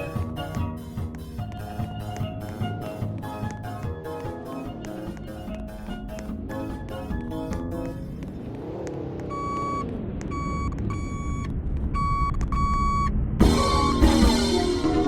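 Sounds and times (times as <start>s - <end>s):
truck engine revving: 6.0s - 11.9s
reversing alarm beeping: 9.3s - 14.4s
ice cream truck jingle: 13.4s - 15.0s.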